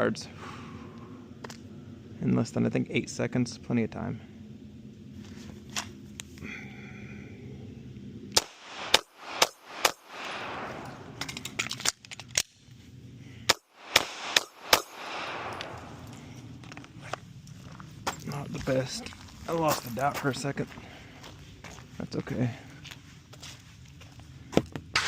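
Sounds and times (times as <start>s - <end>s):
airsoft pistol shots: 8.4s - 11.2s, 13.5s - 15.9s.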